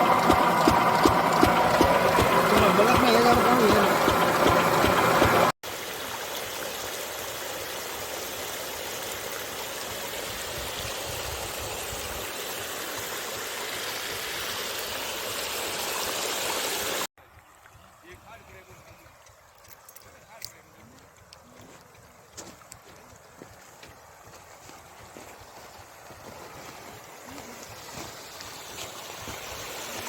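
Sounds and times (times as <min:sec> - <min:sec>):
engine running: 0:00.0 - 0:08.8
flowing water rushing: 0:00.0 - 0:20.3, 0:21.6 - 0:30.0.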